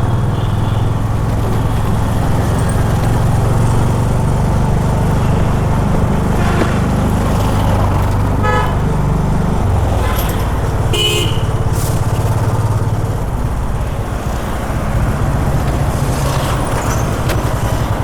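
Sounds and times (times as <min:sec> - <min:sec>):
motorcycle engine running: 0:00.0 - 0:18.0
vehicle horn: 0:00.2 - 0:01.1, 0:05.3 - 0:11.8.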